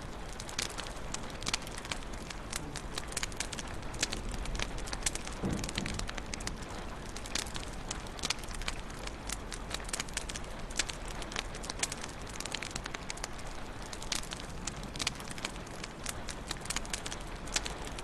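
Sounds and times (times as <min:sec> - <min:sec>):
low hiss of burning: 0:00.0 - 0:18.0
wood fire popping and snapping: 0:00.0 - 0:18.0.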